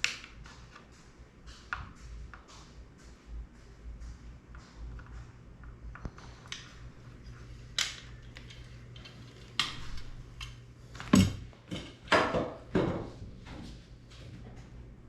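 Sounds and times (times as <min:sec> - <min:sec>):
small hard parts clicking and clattering: 0:07.8 - 0:12.1.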